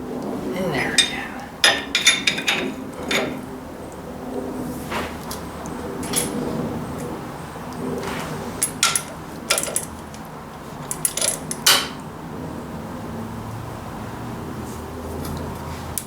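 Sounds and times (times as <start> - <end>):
metal tools clinking: 0.9 - 3.4, 8.6 - 10.1.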